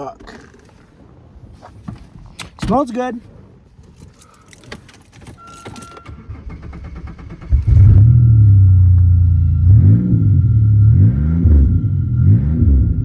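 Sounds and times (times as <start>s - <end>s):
car engine starting: 4.1s - 13.0s
loud engine revving: 6.4s - 13.0s.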